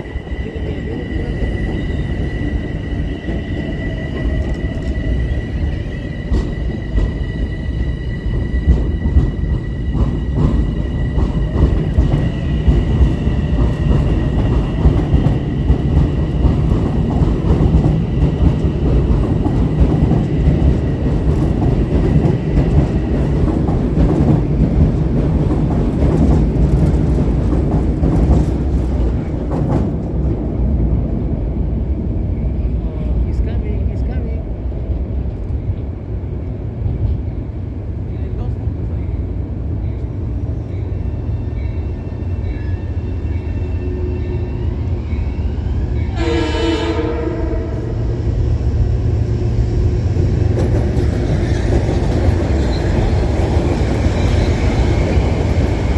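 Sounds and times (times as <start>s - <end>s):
train rumbling: 0.0s - 55.9s
wheels clicking on rails: 8.4s - 30.4s.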